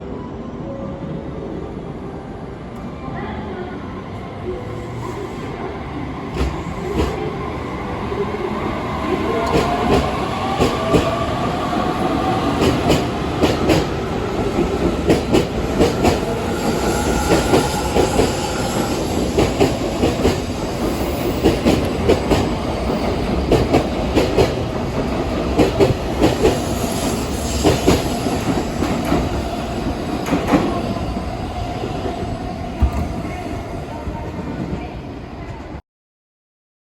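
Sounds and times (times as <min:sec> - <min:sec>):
train rumbling on rails: 0:00.0 - 0:35.8
train pitched whine: 0:04.5 - 0:23.6.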